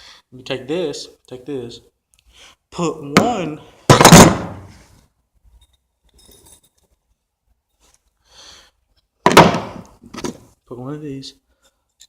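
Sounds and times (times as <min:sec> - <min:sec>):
faint metal clinks: 0:05.5 - 0:07.2.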